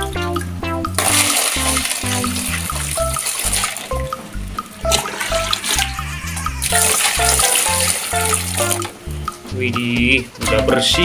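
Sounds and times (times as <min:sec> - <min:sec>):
background music with bass: 0:00.0 - 0:11.0
water running and splashing: 0:01.0 - 0:04.2, 0:04.8 - 0:08.9.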